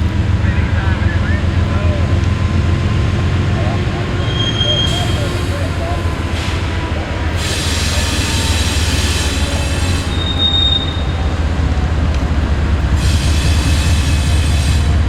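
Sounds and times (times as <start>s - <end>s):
railroad cars rumbling past: 0.0s - 15.0s
wheels squealing on rail: 4.0s - 11.7s, 12.8s - 15.0s.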